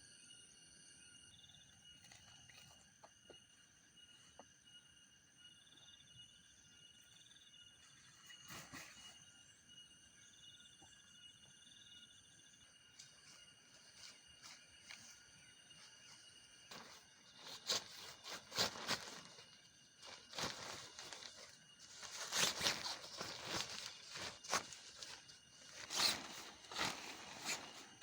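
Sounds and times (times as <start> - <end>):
night insects trilling: 0.0 - 28.0
rustling: 15.8 - 28.0.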